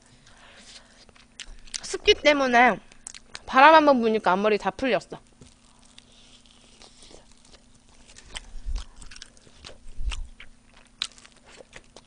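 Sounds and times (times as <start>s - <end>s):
chewing with wet clicks: 2.9s - 3.5s, 5.5s - 12.0s.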